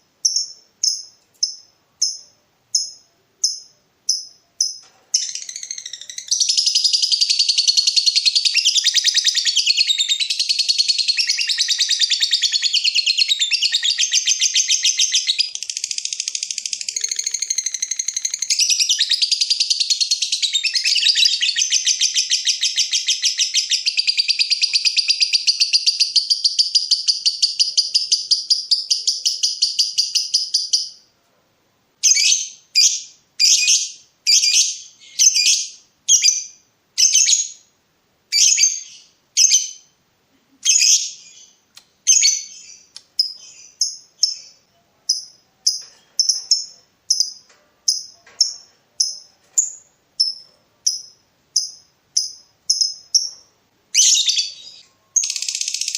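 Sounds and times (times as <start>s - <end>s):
sharp bird chirps: 0.2s - 31.0s, 40.6s - 55.9s
bird chattering trill: 42.1s - 55.9s.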